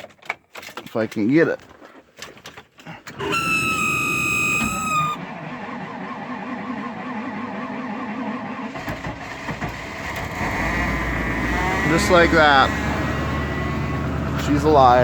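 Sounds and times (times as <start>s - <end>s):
engine starter cranking: 3.1s - 10.9s
engine starting and running: 3.1s - 15.0s.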